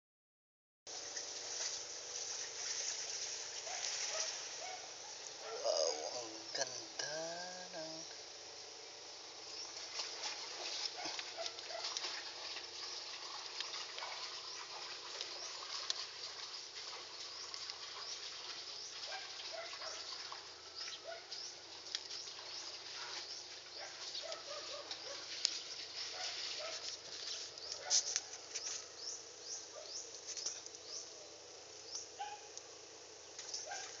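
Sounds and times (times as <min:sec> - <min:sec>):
small birds chirping: 0:12.7 - 0:34.0.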